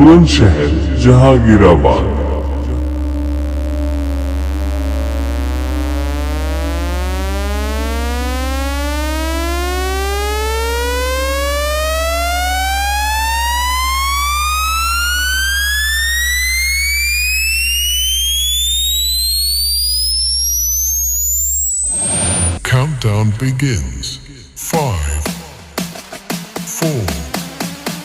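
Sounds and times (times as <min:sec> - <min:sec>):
constant deep bass tone: 0:00.0 - 0:25.8
sine wave tone sweeping upward: 0:01.8 - 0:22.7.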